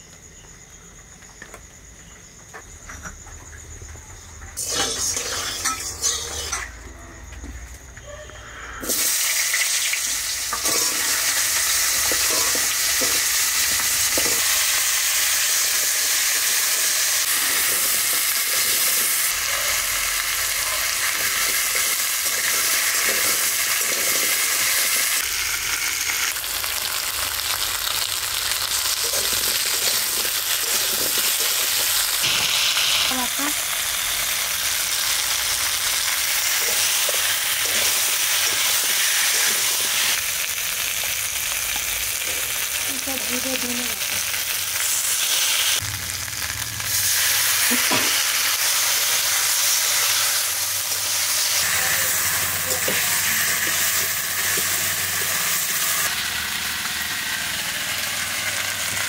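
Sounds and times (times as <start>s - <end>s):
metal spatula scraping wok: 4.6s - 6.8s, 49.4s - 56.1s
food sizzling in hot oil: 4.6s - 6.9s, 8.5s - 59.0s.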